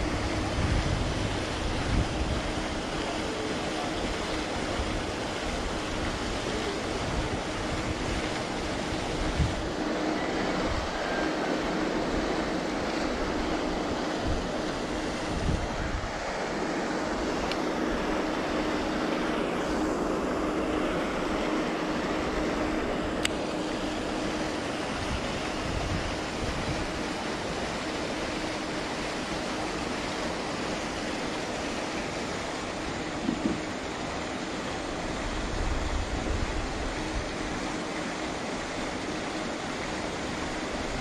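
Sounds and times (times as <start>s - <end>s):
wind buffeting microphone: 0.0s - 2.9s, 4.6s - 11.1s, 12.0s - 16.3s, 24.9s - 27.1s, 33.2s - 33.7s
faint steady hum: 0.0s - 41.0s.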